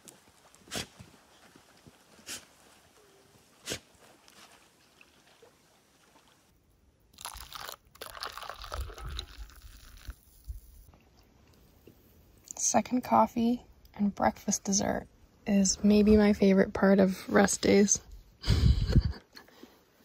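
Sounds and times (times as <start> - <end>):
crunchy food chewing: 7.2 - 10.6.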